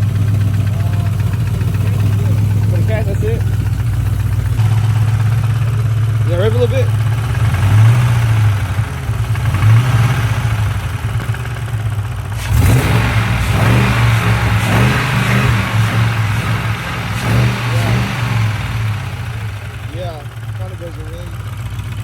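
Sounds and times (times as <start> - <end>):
car engine idling and revving: 0.0 - 22.0
engine lifter ticking: 0.0 - 22.0.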